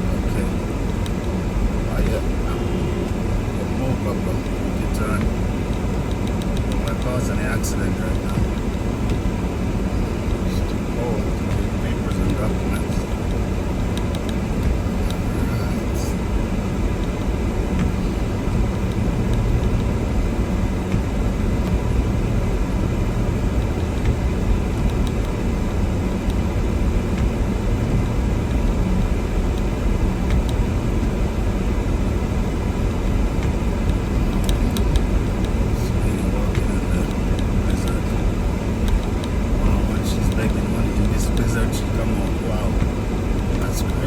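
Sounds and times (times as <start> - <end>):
truck engine and road noise: 0.0 - 44.0.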